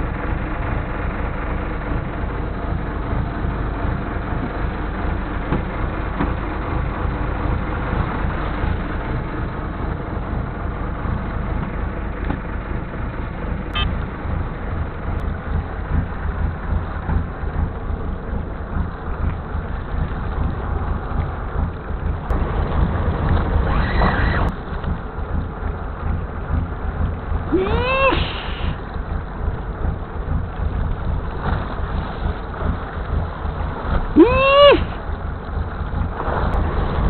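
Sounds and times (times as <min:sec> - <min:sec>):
boat low rumble: 0:00.0 - 0:37.0
hiss: 0:28.1 - 0:28.8.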